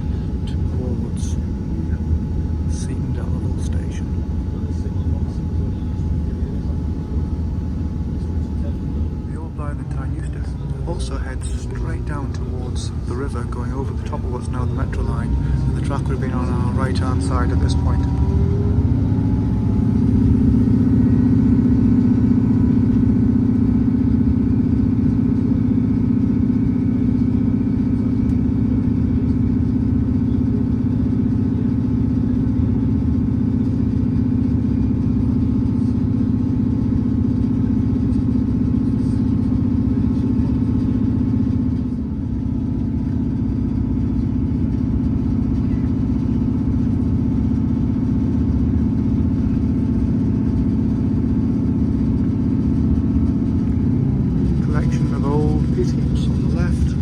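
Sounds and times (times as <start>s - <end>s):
diesel train engine running: 0.0s - 57.0s.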